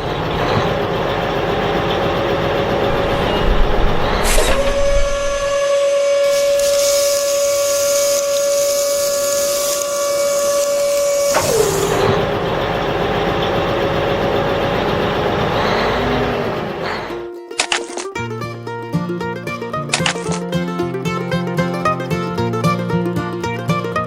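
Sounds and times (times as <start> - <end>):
small motor whining: 0.0 - 18.0
hiss: 2.9 - 12.2.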